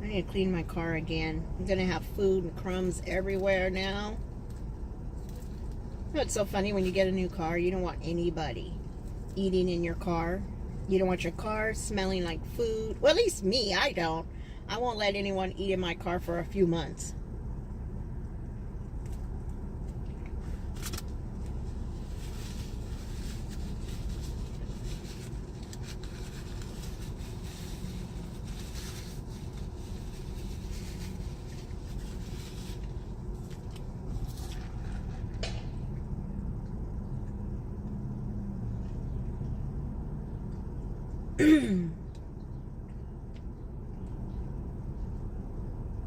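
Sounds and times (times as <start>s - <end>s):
steady low hum: 0.0s - 46.0s
rustling: 20.0s - 35.4s.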